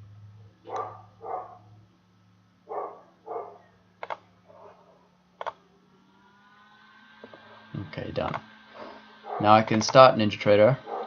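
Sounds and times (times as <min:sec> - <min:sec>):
dog barking: 0:00.6 - 0:01.7, 0:02.7 - 0:03.8, 0:04.5 - 0:05.1, 0:09.3 - 0:09.5
computer mouse double-clicking: 0:04.0 - 0:04.2.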